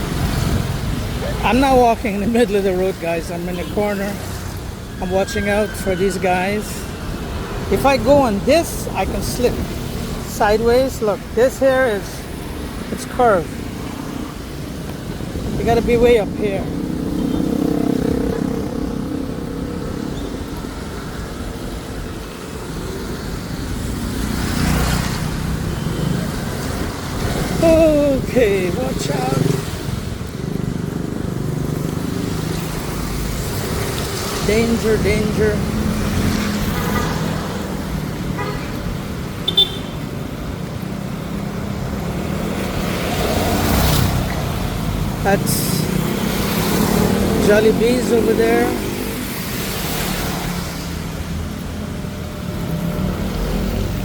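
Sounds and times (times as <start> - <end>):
road traffic rumble: 0.0 - 54.0
vehicle passing: 0.0 - 54.0
short vehicle horn toot: 39.4 - 40.0.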